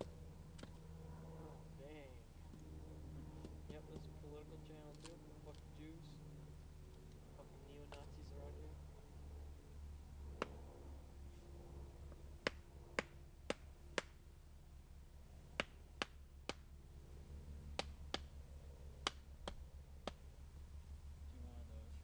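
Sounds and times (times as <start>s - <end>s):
firewood being chopped: 12.4s - 14.2s, 15.6s - 16.7s, 17.8s - 18.3s, 19.0s - 20.2s.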